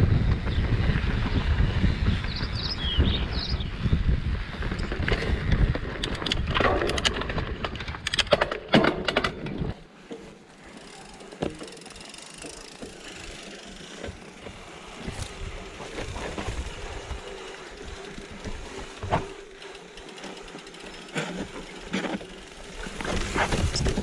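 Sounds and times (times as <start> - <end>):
rumble of wind and tyres: 0.0 - 24.0
bike clattering on rocks: 4.9 - 24.0.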